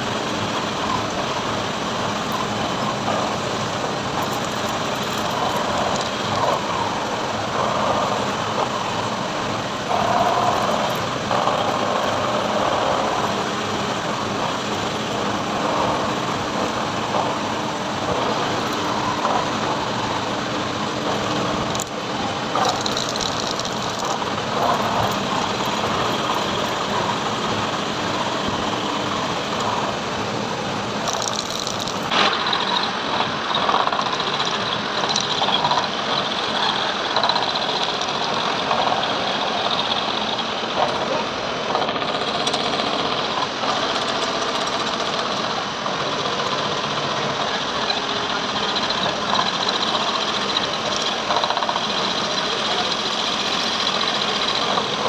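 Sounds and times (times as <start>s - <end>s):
machine tool cutting metal: 2.2s - 41.1s.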